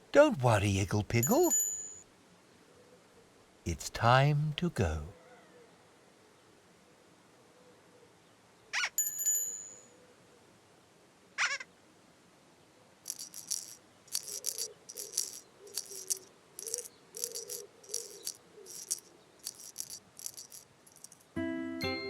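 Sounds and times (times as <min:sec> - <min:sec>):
rattle shaking: 0:01.2 - 0:01.6, 0:13.1 - 0:21.3.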